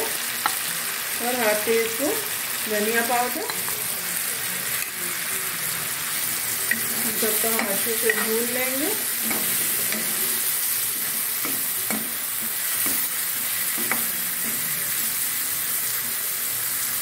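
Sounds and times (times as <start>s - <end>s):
masala sizzling in hot oil: 0.0s - 17.0s
metal ladle scraping pan: 6.7s - 13.0s.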